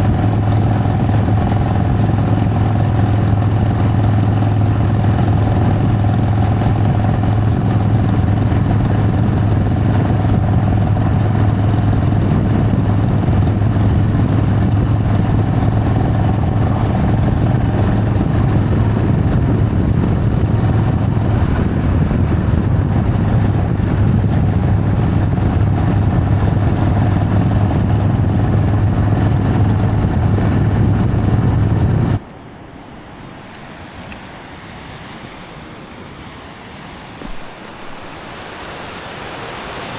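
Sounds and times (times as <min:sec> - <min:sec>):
motorcycle engine droning: 0:00.0 - 0:32.2
wind and road noise: 0:00.0 - 0:39.9
steady hiss: 0:37.0 - 0:39.9.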